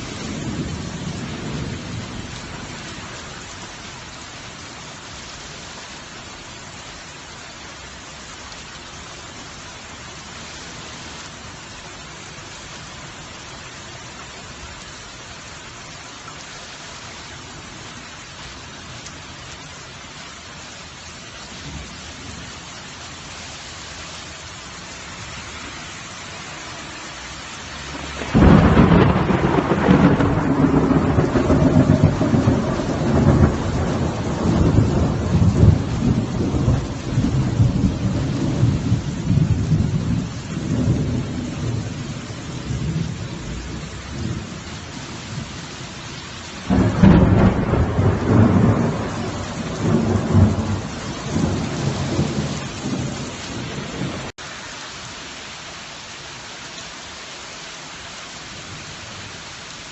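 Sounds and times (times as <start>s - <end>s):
steady rain: 0.0s - 59.9s
thunder rumbling: 27.9s - 45.5s, 46.6s - 54.3s.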